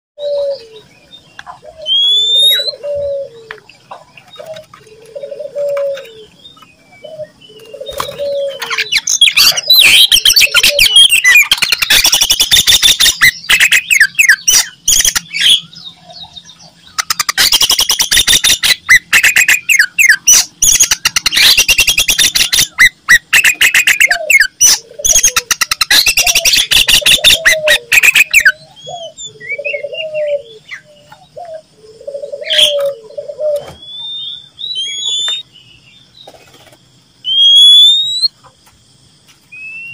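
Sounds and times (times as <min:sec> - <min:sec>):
low cooing: 0:00.2 - 0:00.9, 0:01.5 - 0:06.4, 0:07.0 - 0:08.9, 0:28.6 - 0:30.7, 0:31.4 - 0:33.7
bird chattering song: 0:00.2 - 0:38.8.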